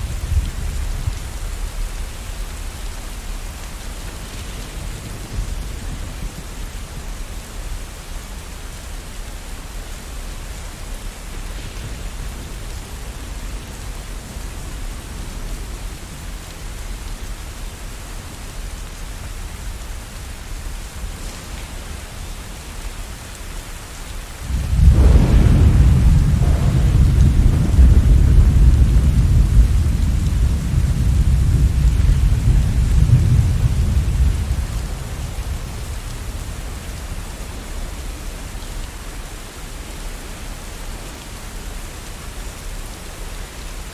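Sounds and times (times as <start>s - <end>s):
steady rain: 0.0s - 43.9s
deep thunder roll: 24.5s - 37.2s.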